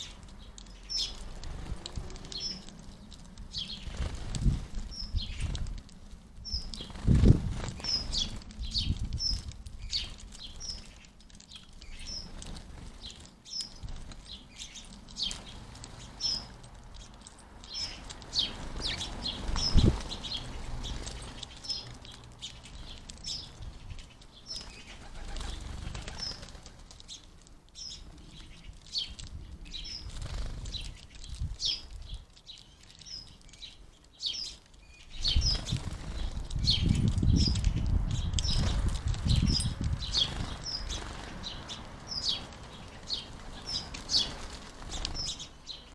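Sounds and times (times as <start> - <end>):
sparrows chirping: 0.0 - 45.9
wings fluttering: 0.0 - 45.9.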